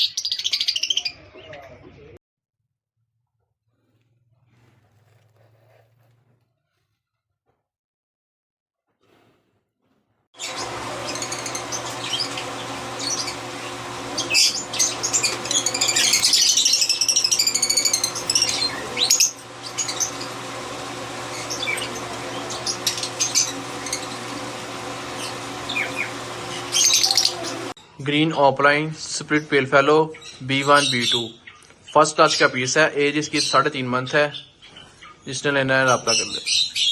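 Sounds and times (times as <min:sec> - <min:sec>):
parrots chattering and squawking: 0:10.4 - 0:27.8
steady mechanical hum: 0:10.4 - 0:27.8.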